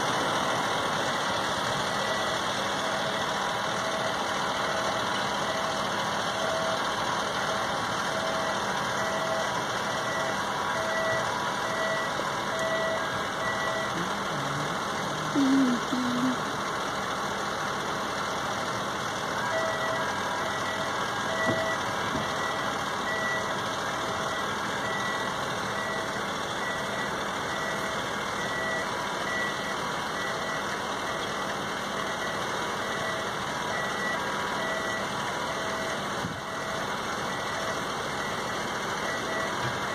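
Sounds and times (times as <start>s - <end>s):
engine noise: 0.0s - 39.9s
electronic warning beeper: 7.5s - 14.0s.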